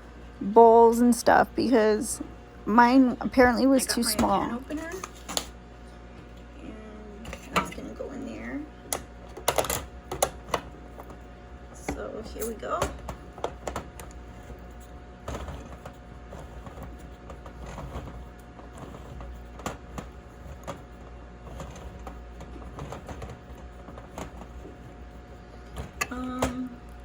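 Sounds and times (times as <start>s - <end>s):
steady low hum: 0.0s - 27.0s
can opener clicking and scraping: 8.9s - 11.2s, 15.3s - 24.9s.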